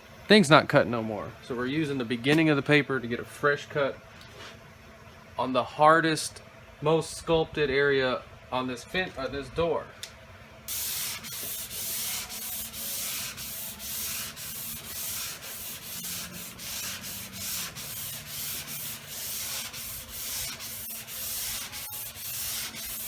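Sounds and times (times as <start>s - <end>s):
sandpaper rasping on car panel: 10.7s - 23.0s.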